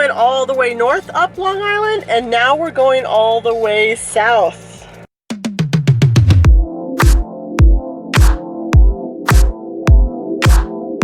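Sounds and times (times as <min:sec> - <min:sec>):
deep kick drum: 0:05.3 - 0:10.7
sharp drum hits: 0:05.3 - 0:10.7
sustained synth chords: 0:06.5 - 0:11.0.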